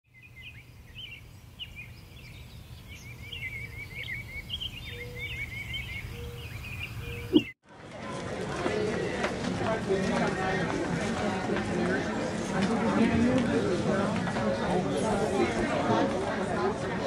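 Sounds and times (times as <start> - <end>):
small birds chirping: 0.1 - 7.6.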